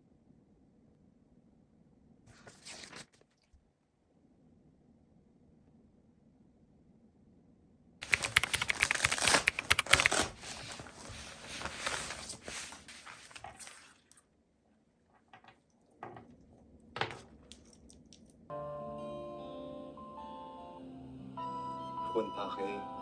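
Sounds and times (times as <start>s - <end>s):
handling clicks and rustles: 8.0s - 13.8s.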